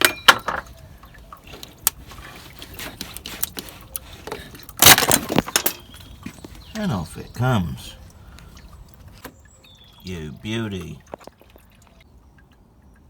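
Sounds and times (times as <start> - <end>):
hose knocking and rubbing: 1.6 - 5.6.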